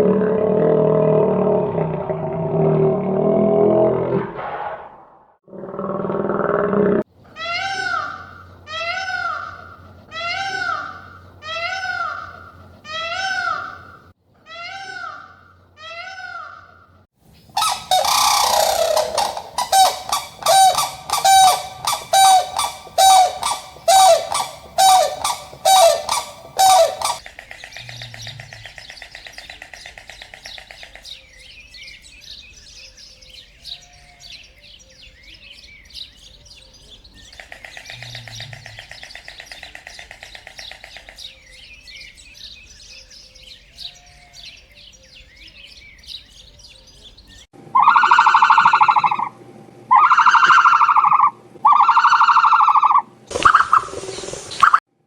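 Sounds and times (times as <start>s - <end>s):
birds chirping: 17.3s - 54.9s
rapid repeated animal calls: 17.6s - 31.2s, 37.3s - 41.4s, 47.8s - 54.8s.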